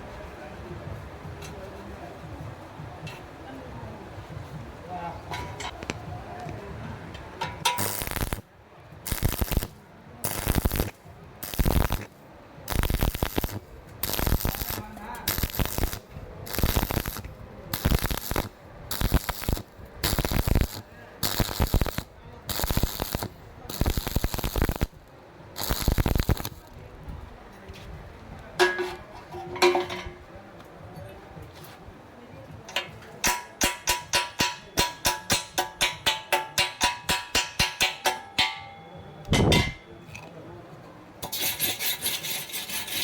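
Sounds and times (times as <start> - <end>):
welding arc crackling bursts: 7.6 - 26.8, 41.2 - 43.0.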